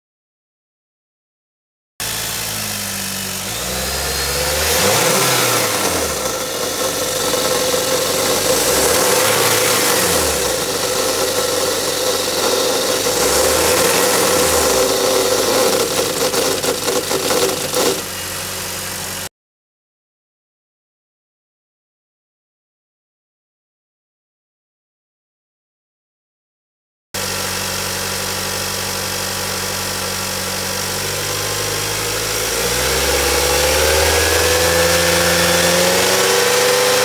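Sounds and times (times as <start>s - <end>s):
car engine revving: 2.0s - 19.3s, 27.2s - 37.0s.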